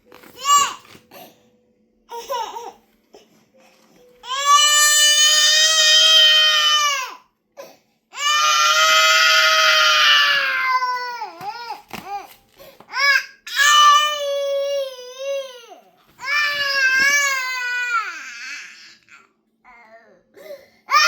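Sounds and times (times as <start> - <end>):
toddler crying: 0.4 - 0.8, 4.2 - 7.2, 8.1 - 12.3, 12.9 - 20.2.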